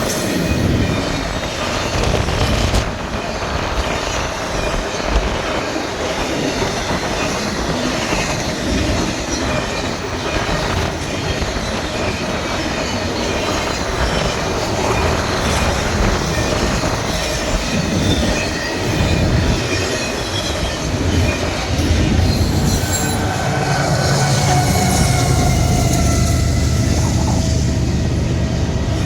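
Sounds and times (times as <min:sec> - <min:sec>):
freight train rumbling on rails: 0:00.0 - 0:29.0
high wheel squeals: 0:11.4 - 0:29.0.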